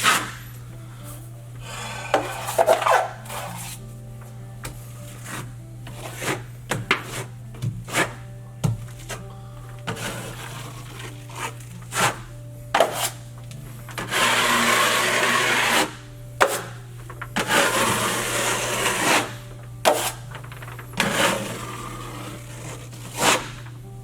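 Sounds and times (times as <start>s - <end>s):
blade scraping compound on wall: 0.0s - 0.5s, 2.0s - 3.8s, 5.1s - 8.3s, 9.8s - 13.3s, 13.9s - 23.7s.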